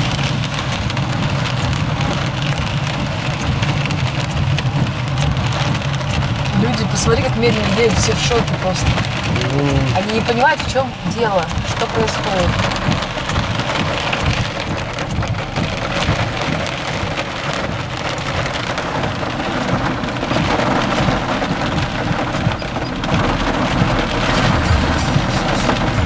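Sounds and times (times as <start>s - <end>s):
heavy rain on a car roof: 0.0s - 26.0s
thunder rumbling: 0.0s - 26.0s.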